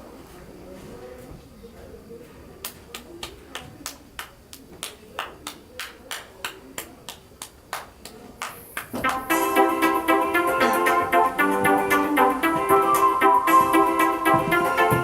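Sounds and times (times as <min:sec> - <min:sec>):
electronic keyboard accompaniment: 0:09.0 - 0:15.0.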